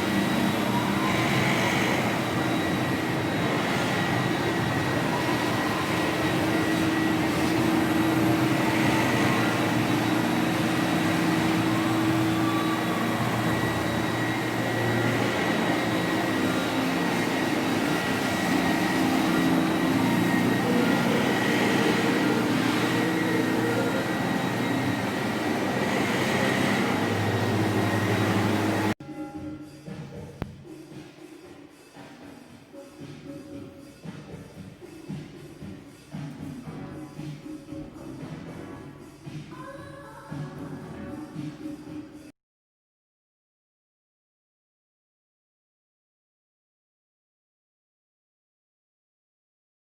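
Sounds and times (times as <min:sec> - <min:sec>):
floor-cleaning machine motor humming: 0:00.0 - 0:29.0.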